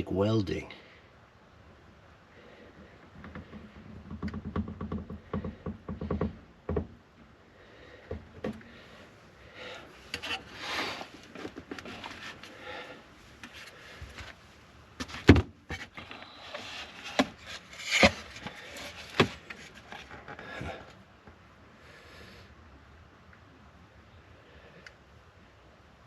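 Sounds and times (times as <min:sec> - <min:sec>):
sharp knocks and clicks: 0:03.1 - 0:07.0
rubbing and scraping: 0:10.1 - 0:13.8, 0:15.0 - 0:20.9.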